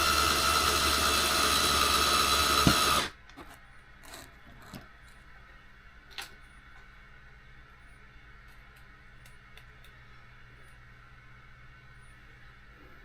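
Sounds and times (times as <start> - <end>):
electric screwdriver running: 0.0 - 3.1
faint clicks of small parts: 8.5 - 10.0.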